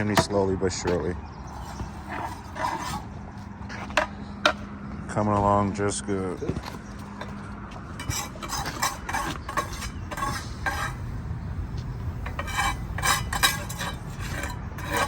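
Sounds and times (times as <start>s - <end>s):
trowel scraping mortar and brick: 1.5s - 4.0s, 8.0s - 11.2s, 12.0s - 15.0s.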